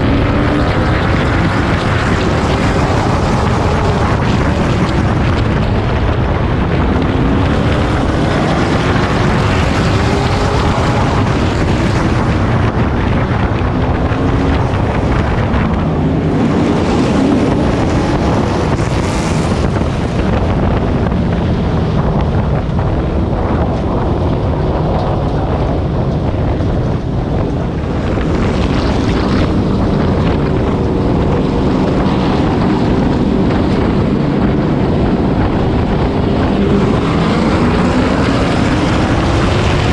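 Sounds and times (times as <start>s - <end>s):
race truck engine running hard: 0.0s - 39.9s
wind and road noise: 0.0s - 39.9s.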